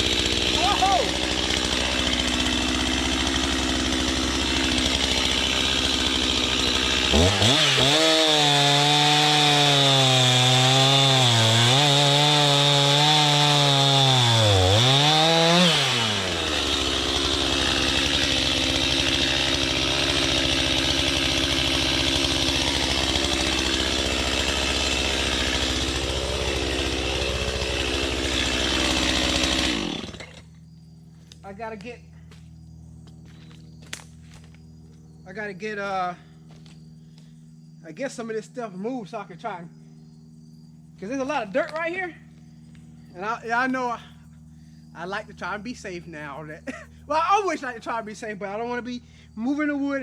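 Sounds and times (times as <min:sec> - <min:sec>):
chainsaw cutting wood: 0:00.0 - 0:35.0, 0:36.2 - 0:37.6, 0:40.9 - 0:48.3.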